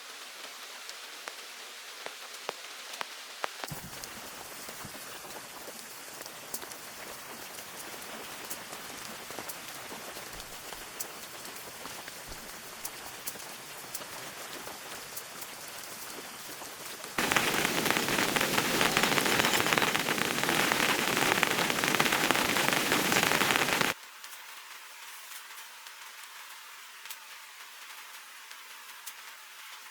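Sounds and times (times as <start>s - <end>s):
rain falling: 16.4s - 24.0s
heavy rain: 17.2s - 24.0s.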